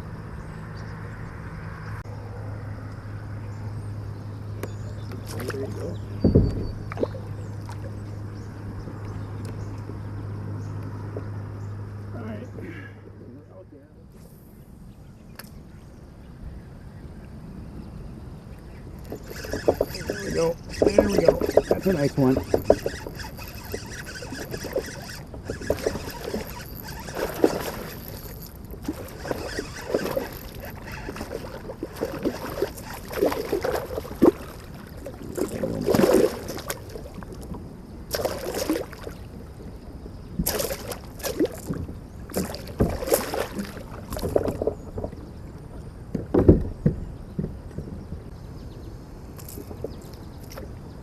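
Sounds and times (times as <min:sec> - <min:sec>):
knocks against kayak: 0:06.2 - 0:07.0, 0:46.1 - 0:47.9
water splashing: 0:19.0 - 0:39.5, 0:40.4 - 0:45.2.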